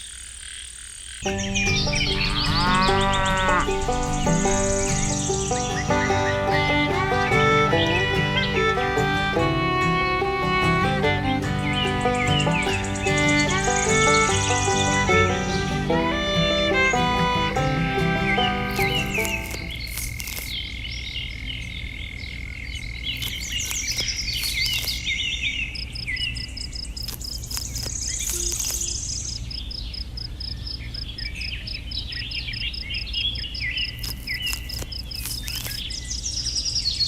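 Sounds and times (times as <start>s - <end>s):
high insect trill: 0.0s - 8.8s, 25.8s - 30.8s
pulsing insect chirp: 0.0s - 10.6s, 11.3s - 37.0s
low hum: 1.2s - 19.8s
birds chirping and calling: 1.2s - 21.9s, 22.7s - 30.0s.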